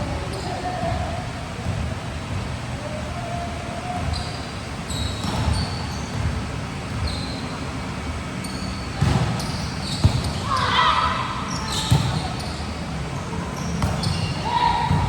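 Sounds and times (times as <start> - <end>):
sneaker squeaks on floor: 3.8 - 15.0.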